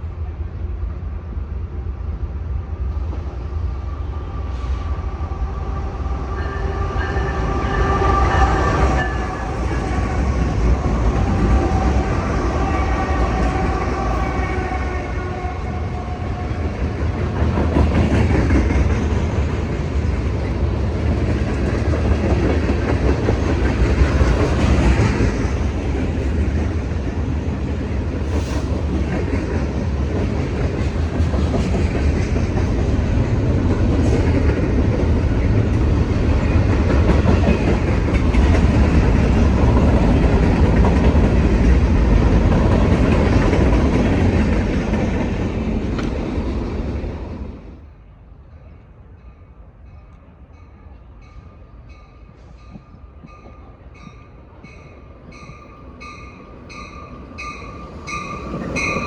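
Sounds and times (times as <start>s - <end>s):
train wheels rumbling on rails: 0.0s - 48.0s, 48.6s - 59.0s
train horn: 4.0s - 16.8s.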